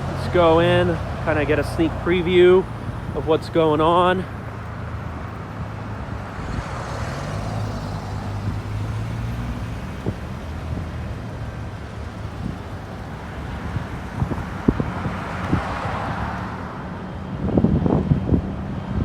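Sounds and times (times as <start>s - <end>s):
road traffic: 0.0s - 19.0s
vehicle engine hum rising: 0.0s - 19.0s.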